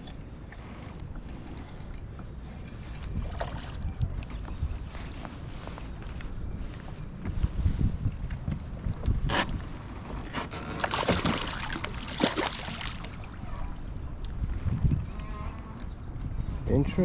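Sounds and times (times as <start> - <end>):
wind buffeting microphone: 0.0 - 17.0
water slapping against kayak hull: 10.4 - 13.4.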